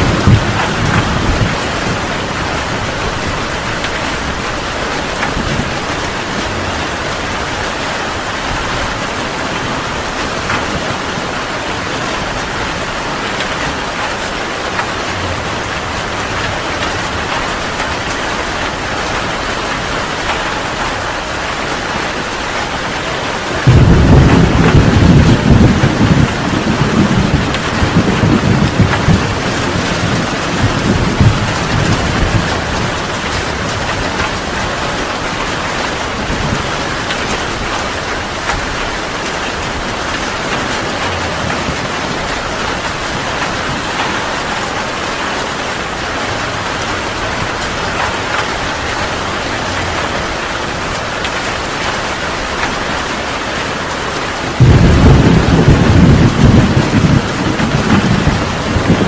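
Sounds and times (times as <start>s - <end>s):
thunder rumbling: 0.0s - 53.4s, 54.4s - 59.0s
heavy rain: 0.0s - 59.0s.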